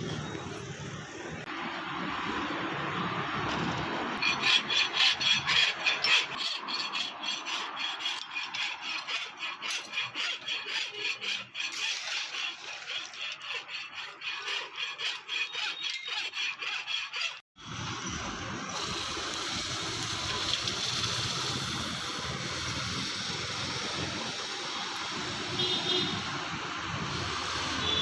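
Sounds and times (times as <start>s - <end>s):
file rasping on steel: 4.1s - 17.5s, 27.0s - 28.0s.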